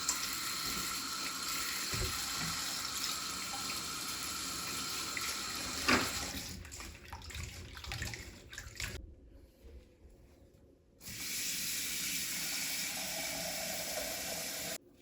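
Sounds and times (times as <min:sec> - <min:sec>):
tap water running into sink: 0:00.0 - 0:09.0.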